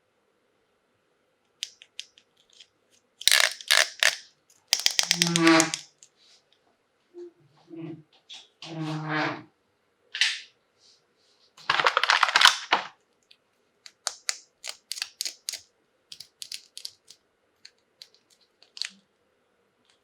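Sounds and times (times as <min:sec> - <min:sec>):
plastic parts clicking: 0:01.6 - 0:06.1, 0:13.9 - 0:19.0
packaging crinkling: 0:03.2 - 0:05.9, 0:11.6 - 0:12.8, 0:13.9 - 0:17.2.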